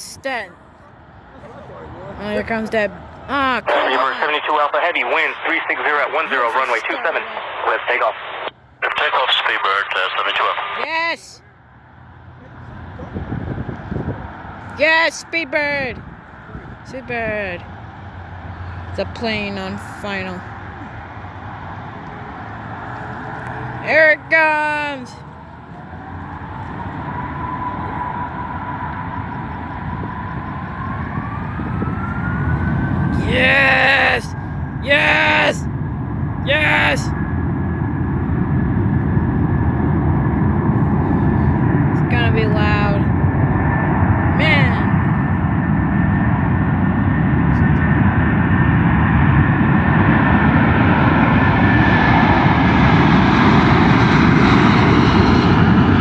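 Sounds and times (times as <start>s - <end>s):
jet engines roaring: 0.0s - 56.0s
engine whine rising in pitch: 11.4s - 56.0s.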